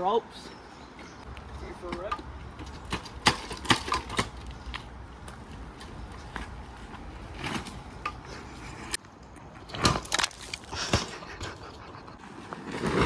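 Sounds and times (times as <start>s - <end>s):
mountain bike rattling off-road: 1.6s - 9.0s.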